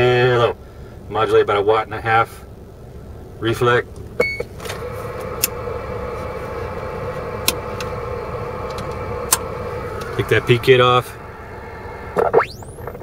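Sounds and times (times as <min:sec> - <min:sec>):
radio hiss and hum: 0:04.7 - 0:13.0.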